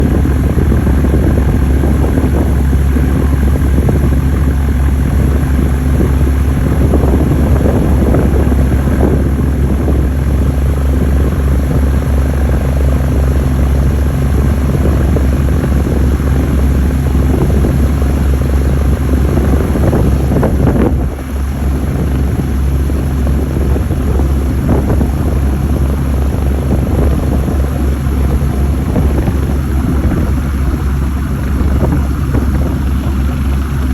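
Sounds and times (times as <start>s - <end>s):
helicopter rotor and turbines droning: 0.0s - 33.9s.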